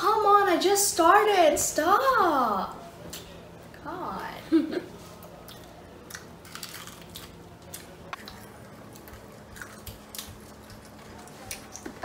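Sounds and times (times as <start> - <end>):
chewing crunchy pastry: 5.2 - 12.0.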